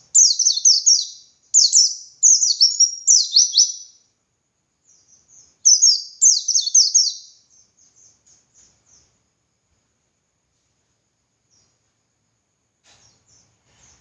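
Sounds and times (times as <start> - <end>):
bird singing high chirps: 0.0 - 4.1, 4.8 - 9.1.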